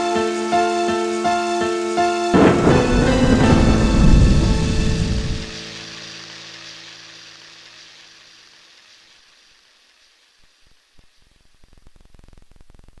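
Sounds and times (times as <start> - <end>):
background music: 0.0 - 6.1
faint hiss: 0.0 - 13.0
static clicks and crackle: 2.4 - 13.0.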